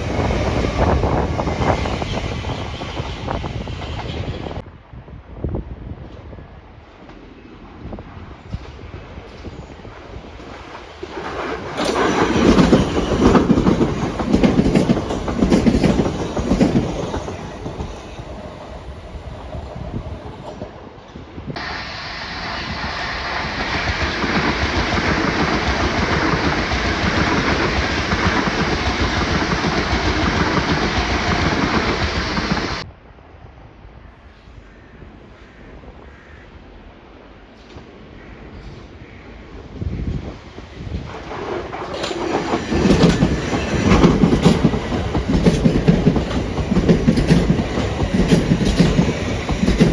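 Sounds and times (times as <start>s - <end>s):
train rushing past: 0.0s - 4.6s, 5.9s - 32.9s, 37.2s - 49.9s
train wheels clacking over joints: 10.4s - 20.7s, 41.0s - 49.9s.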